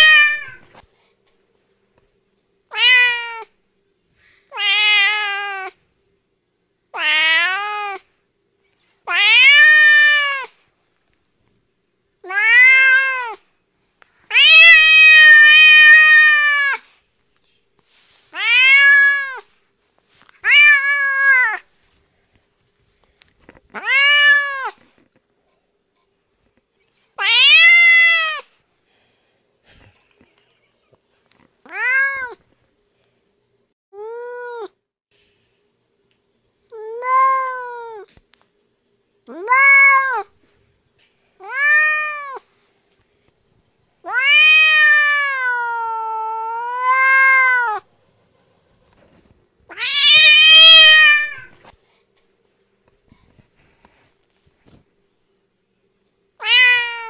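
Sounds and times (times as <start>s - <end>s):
cat meowing angrily: 0.0s - 0.7s, 2.7s - 3.5s, 4.5s - 5.8s, 7.0s - 8.0s, 9.1s - 10.5s, 12.2s - 13.4s, 14.3s - 16.9s, 18.3s - 19.5s, 20.4s - 21.7s, 23.7s - 24.8s, 27.2s - 28.5s, 31.7s - 32.4s, 39.3s - 40.3s, 41.4s - 42.5s, 44.0s - 47.9s, 49.7s - 51.6s, 56.4s - 57.0s.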